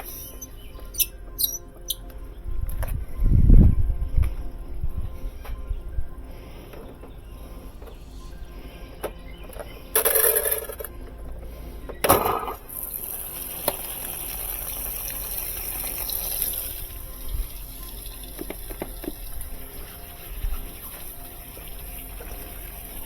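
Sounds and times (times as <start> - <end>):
water rushing into washer tub: 12.7 - 23.0.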